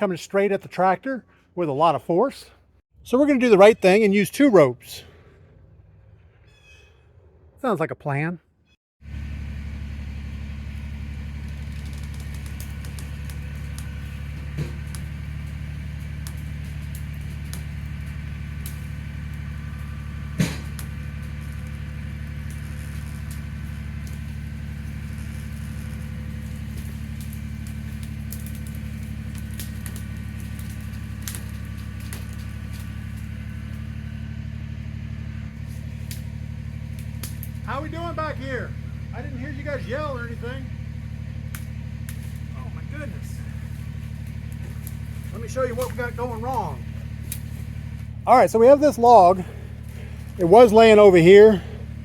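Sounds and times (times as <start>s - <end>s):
tractor diesel engine running: 0.0s - 6.8s, 9.0s - 52.0s
wood snapping: 10.7s - 34.1s, 35.4s - 38.0s, 40.8s - 48.2s, 49.0s - 52.0s.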